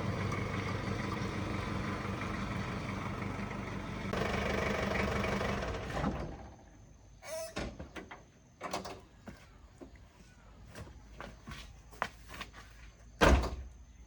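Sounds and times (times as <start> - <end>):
truck engine running: 0.0 - 6.6
short squeak: 7.2 - 7.8.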